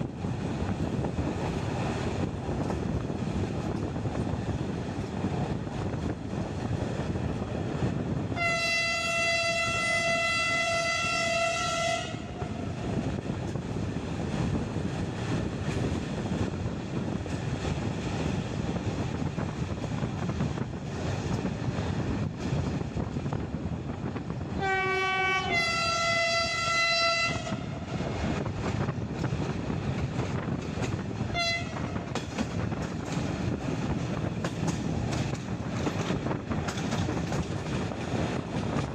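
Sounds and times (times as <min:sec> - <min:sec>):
moving train rumble: 0:00.0 - 0:38.9
train horn blasts: 0:08.4 - 0:12.7, 0:24.6 - 0:28.0, 0:31.3 - 0:32.1.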